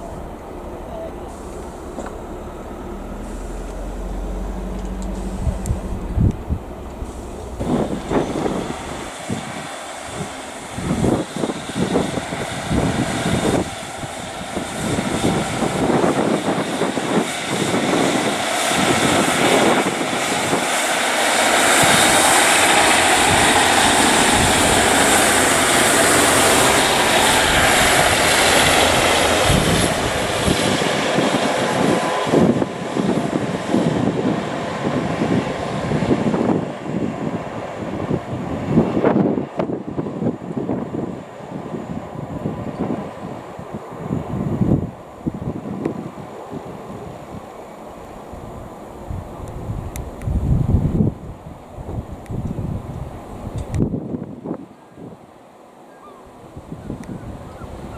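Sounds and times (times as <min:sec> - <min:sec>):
diesel train passing: 0:00.0 - 0:53.5
wind buffeting microphone: 0:00.0 - 0:55.3, 0:56.4 - 0:57.9.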